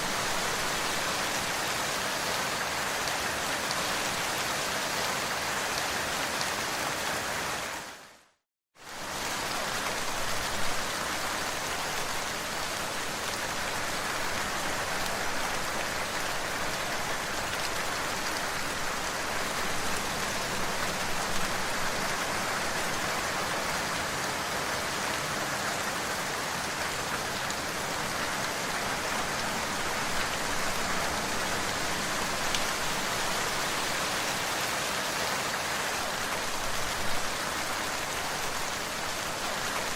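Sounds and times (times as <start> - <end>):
steady rain hiss: 0.0 - 8.2, 8.8 - 39.9.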